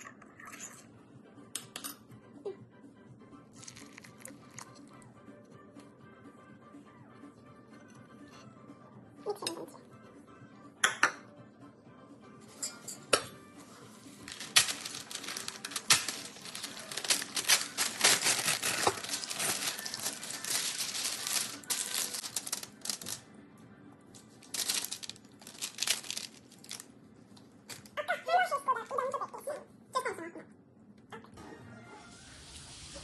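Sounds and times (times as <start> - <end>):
granola crackling on paper: 14.3 - 23.2, 24.4 - 26.9.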